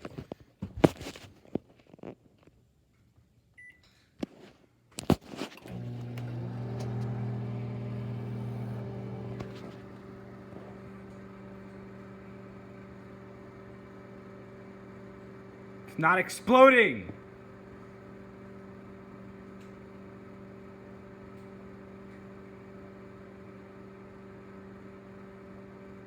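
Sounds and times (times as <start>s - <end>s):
microwave oven humming: 5.6s - 26.0s
microwave clicks: 5.7s - 10.0s.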